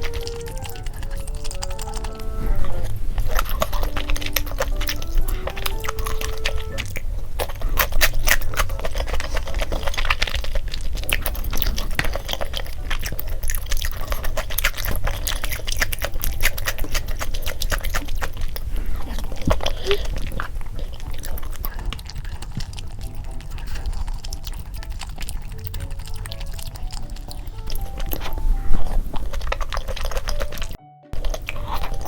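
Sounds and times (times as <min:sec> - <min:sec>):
cute background melody: 0:00.0 - 0:07.6, 0:11.4 - 0:18.3, 0:21.8 - 0:32.0
close chewing of food: 0:00.0 - 0:32.0.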